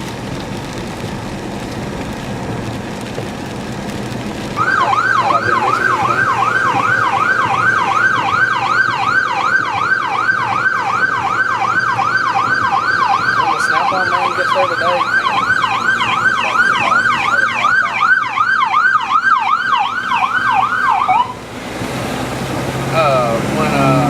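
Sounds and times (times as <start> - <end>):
vehicle road and engine noise: 0.0 - 24.0
emergency siren yelping: 4.5 - 21.6.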